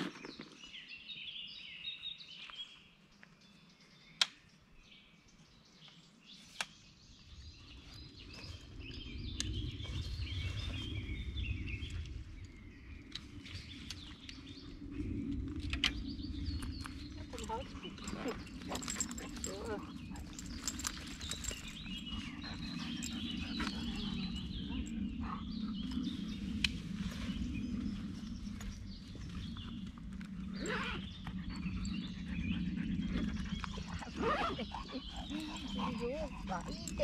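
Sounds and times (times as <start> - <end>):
songbirds chirping and singing: 0.0 - 37.0
low rumble: 7.2 - 37.0.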